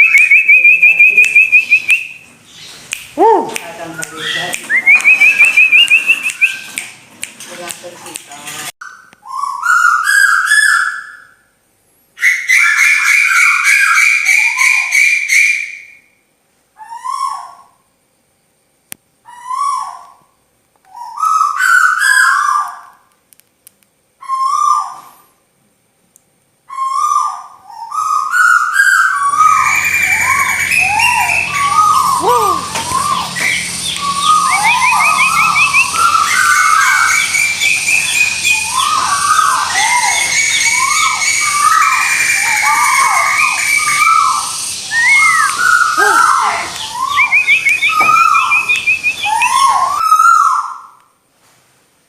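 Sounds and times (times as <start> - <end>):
chorus of overlapping bird calls: 0.0 - 3.0, 3.8 - 6.8, 8.9 - 11.6, 12.2 - 16.1, 19.2 - 23.1, 26.7 - 51.0
whistled bird calls: 0.0 - 6.9, 8.8 - 11.6, 12.2 - 16.2, 24.2 - 25.3, 26.7 - 51.0
low hum: 29.3 - 41.7.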